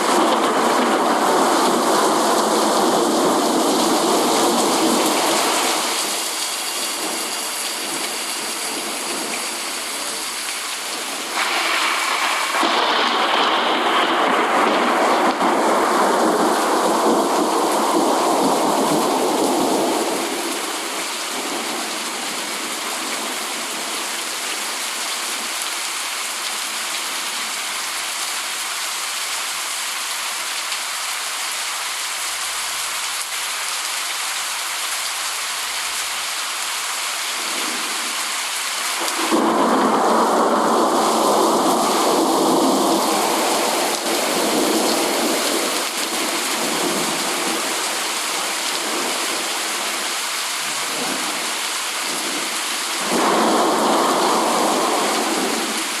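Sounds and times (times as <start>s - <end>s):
thunder rumbling: 0.0s - 5.9s, 11.4s - 20.3s, 39.0s - 47.8s, 53.0s - 55.8s
heavy rain hissing: 0.0s - 56.0s.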